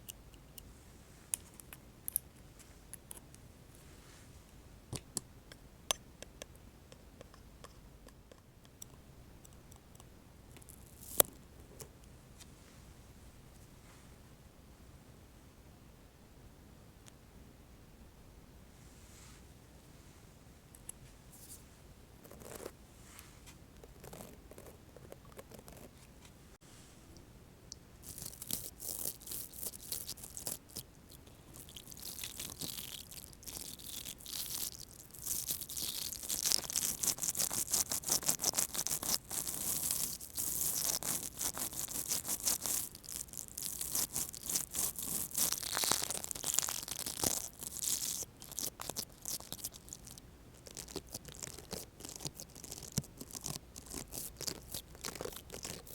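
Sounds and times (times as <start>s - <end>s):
toothbrush bristles scratching: 31.6s - 55.9s.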